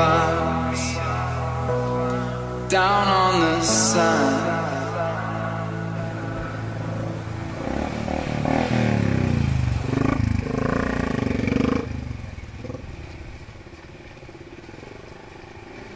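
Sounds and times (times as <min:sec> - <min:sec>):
motorcycle engine running: 0:07.1 - 0:15.9.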